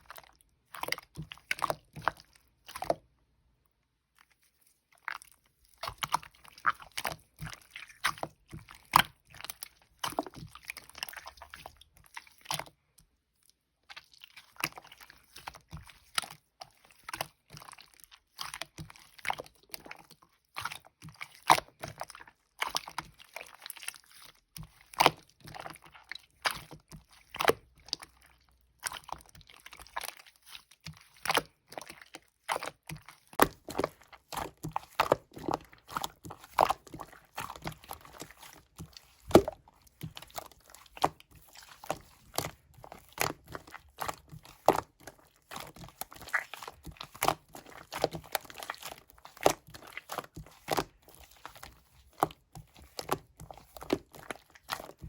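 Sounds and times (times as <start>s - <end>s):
slime squished by hand: 4.1s - 12.8s, 13.4s - 55.0s.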